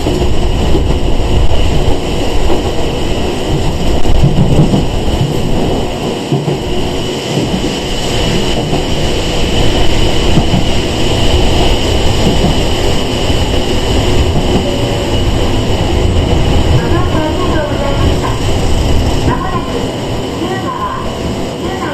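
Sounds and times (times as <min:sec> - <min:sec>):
train wheels and motors rumbling: 0:00.0 - 0:21.9.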